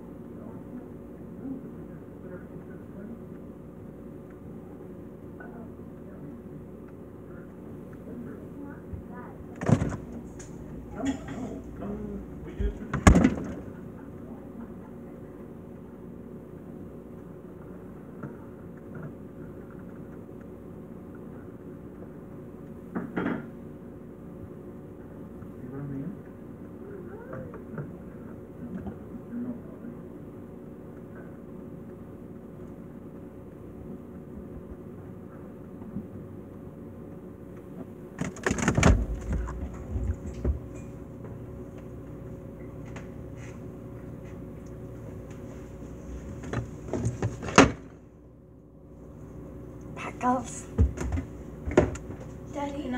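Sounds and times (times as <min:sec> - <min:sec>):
refrigerator humming: 0:00.0 - 0:52.9
refrigerator door opening: 0:09.6 - 0:11.9, 0:12.5 - 0:13.8, 0:38.2 - 0:40.8, 0:46.3 - 0:48.0
items rattling on shelves: 0:38.2 - 0:40.8.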